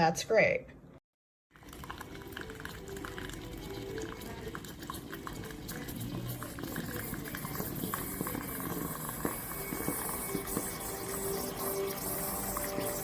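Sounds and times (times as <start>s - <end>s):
crackling sputters: 1.6s - 13.0s
espresso machine steam hissing: 4.2s - 13.0s.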